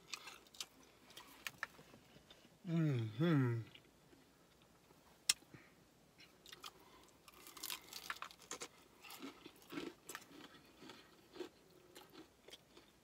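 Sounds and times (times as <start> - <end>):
chewing crispy chicken: 6.4 - 13.0.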